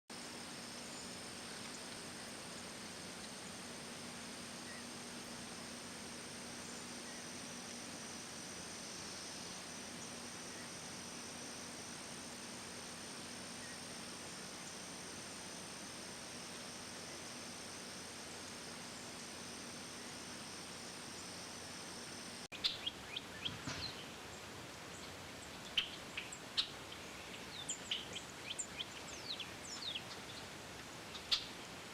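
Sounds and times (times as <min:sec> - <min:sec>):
steady hiss: 0:00.1 - 0:31.9
birds chirping: 0:22.6 - 0:31.8.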